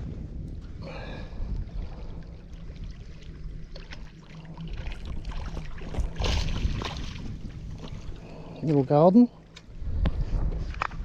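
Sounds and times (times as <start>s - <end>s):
wind rumble on microphone: 0.0s - 11.0s
water splashing against boat: 1.4s - 9.6s.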